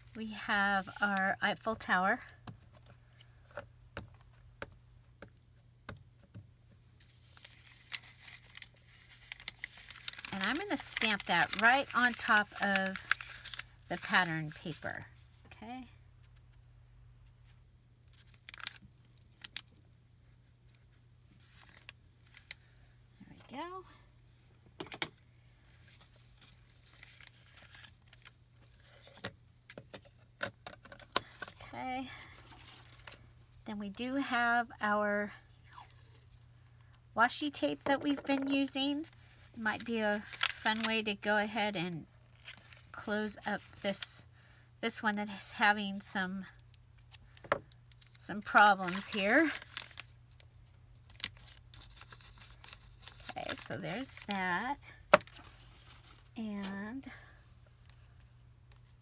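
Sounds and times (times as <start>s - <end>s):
low steady hum: 0.0s - 59.0s
paper rustling: 7.0s - 15.0s, 25.6s - 29.3s, 37.7s - 41.0s, 47.9s - 56.7s.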